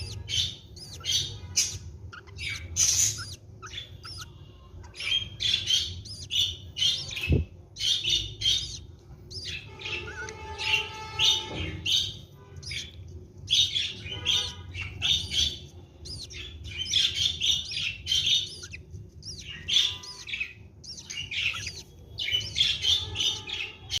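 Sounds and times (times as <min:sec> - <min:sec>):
budgerigars chirping: 0:00.0 - 0:24.0
drawn-out bird call: 0:13.5 - 0:24.0.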